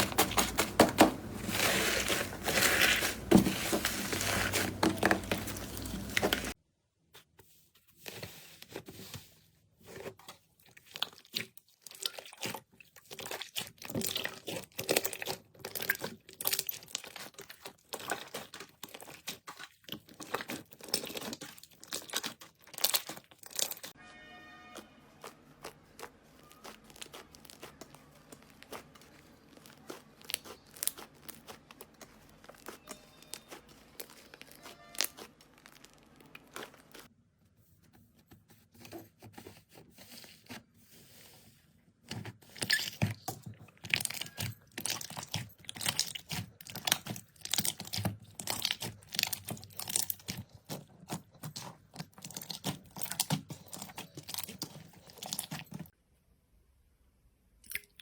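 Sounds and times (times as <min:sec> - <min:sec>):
slime crackling and popping: 0:10.9 - 0:24.0, 0:24.8 - 0:37.1, 0:42.6 - 0:56.0.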